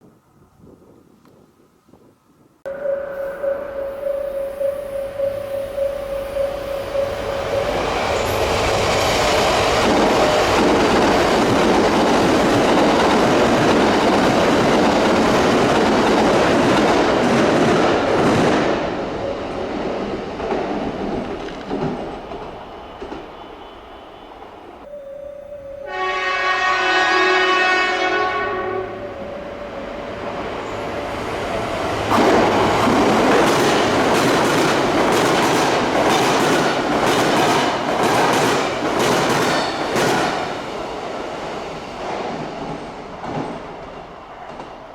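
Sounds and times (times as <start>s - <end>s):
steady high tone: 2.7s - 10.6s, 23.5s - 33.6s
train wheel and rail noise: 2.7s - 44.9s.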